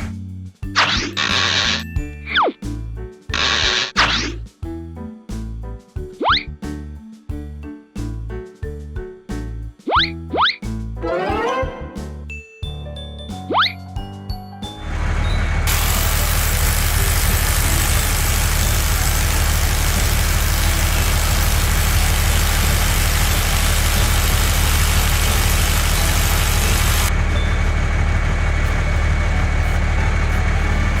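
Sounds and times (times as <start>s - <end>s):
heavy vehicle engine rumbling: 14.8s - 31.0s
hiss: 15.7s - 27.1s.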